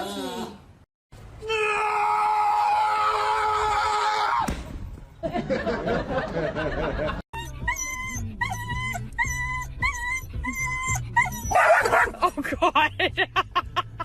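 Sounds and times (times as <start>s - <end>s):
high-pitched wailing cry: 7.4s - 11.6s
dog yelping and whimpering: 7.4s - 12.2s.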